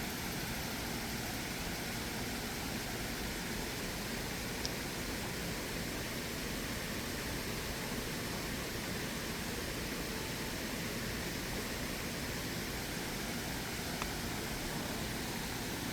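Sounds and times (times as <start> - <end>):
stream water flowing: 0.4 - 15.9.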